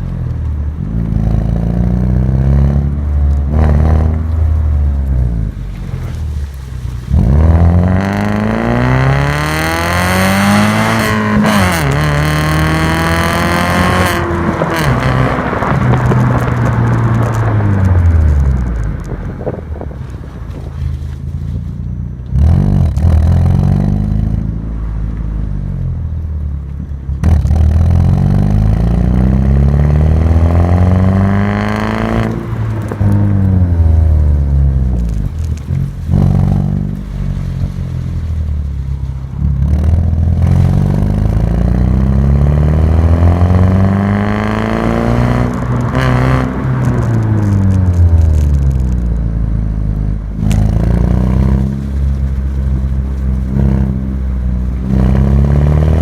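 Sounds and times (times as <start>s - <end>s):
car engine revving loudly: 7.1s - 18.2s, 27.2s - 34.6s, 39.7s - 48.5s, 53.3s - 56.0s.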